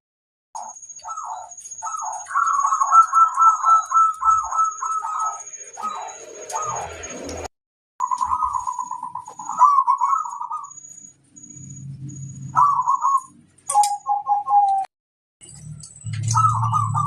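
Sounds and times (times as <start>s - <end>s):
dove cooing: 0.6s - 7.4s, 8.0s - 10.8s, 12.4s - 14.9s, 16.2s - 17.0s.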